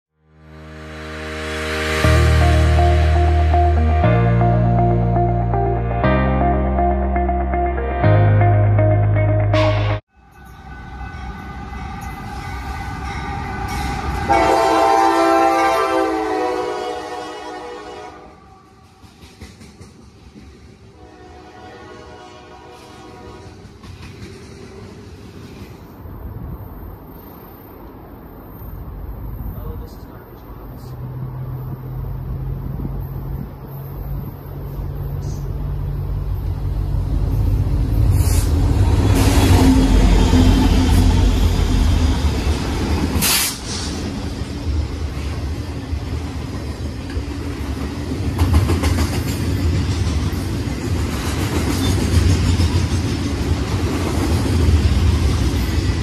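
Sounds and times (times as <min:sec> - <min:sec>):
train horn chord: 0:00.3 - 0:12.8, 0:13.4 - 0:18.8, 0:21.0 - 0:23.7
locomotive engine and wheels rumble: 0:22.6 - 0:56.0.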